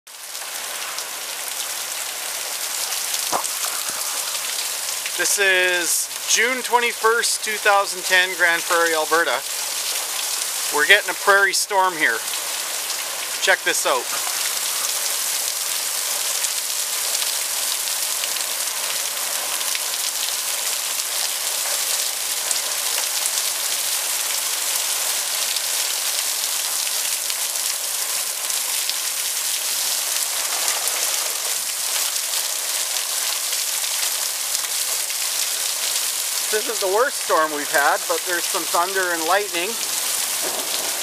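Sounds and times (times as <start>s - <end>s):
rain falling steadily: 0.1s - 41.0s
single raindrops ticking: 2.7s - 10.8s, 39.7s - 41.0s.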